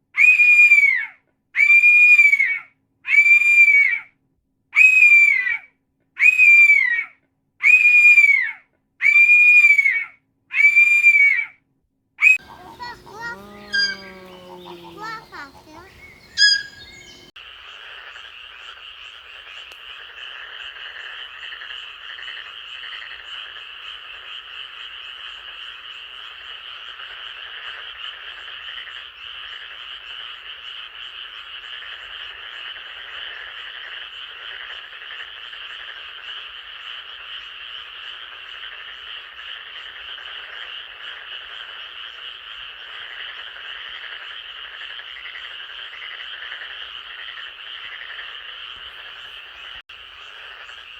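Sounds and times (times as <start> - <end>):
loud pitched call: 12.2 - 17.3
chorus of frogs calling: 12.2 - 50.9.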